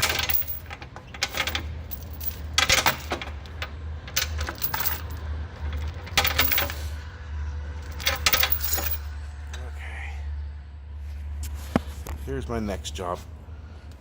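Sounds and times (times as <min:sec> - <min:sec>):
metal chain clinking: 0:00.0 - 0:07.0, 0:07.8 - 0:09.2
low hum: 0:00.0 - 0:14.0.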